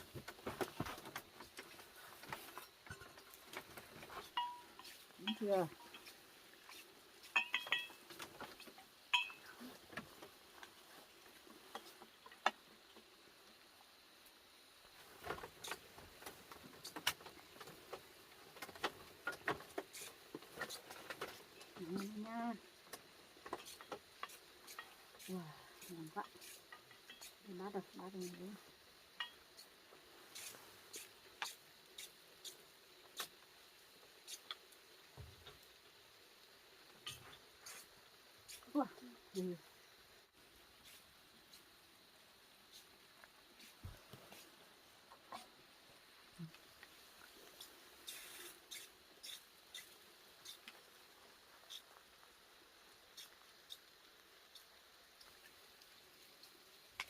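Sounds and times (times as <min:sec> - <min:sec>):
dishes and utensils clicking: 0:07.3 - 0:08.0.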